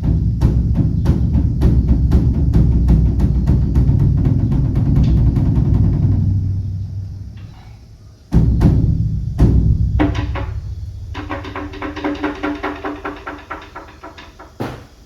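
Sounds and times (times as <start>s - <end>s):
heavy drum strikes: 0.0s - 7.6s, 8.2s - 15.0s
large drum roll: 0.0s - 7.6s, 8.2s - 15.0s.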